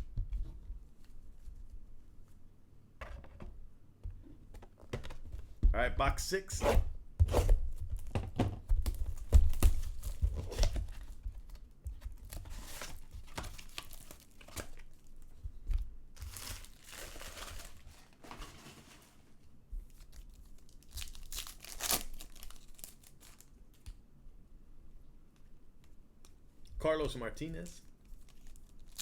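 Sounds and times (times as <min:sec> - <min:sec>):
wrappers tearing and crumpling: 0:12.3 - 0:15.1, 0:16.2 - 0:18.2, 0:19.9 - 0:23.8, 0:28.2 - 0:29.0.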